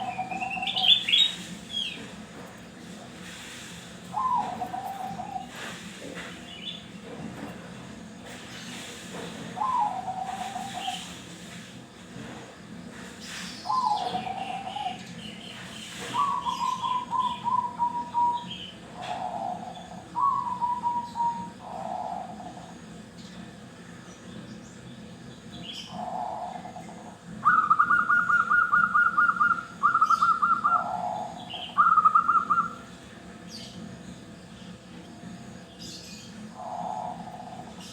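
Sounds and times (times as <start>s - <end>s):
doves cooing: 0.0s - 2.1s, 4.1s - 5.8s, 9.5s - 11.3s, 13.7s - 15.1s, 16.1s - 22.9s, 25.9s - 33.0s, 36.5s - 37.9s.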